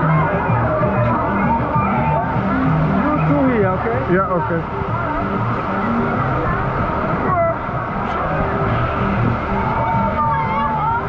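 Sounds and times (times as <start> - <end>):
water rushing down a slide: 0.0 - 11.0.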